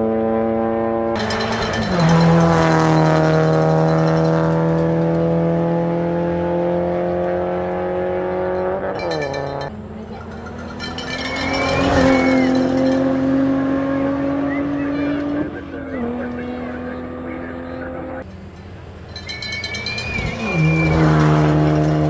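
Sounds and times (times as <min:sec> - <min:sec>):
engine crackle: 0:00.0 - 0:22.0
rally car engine pulling hard: 0:00.0 - 0:22.0.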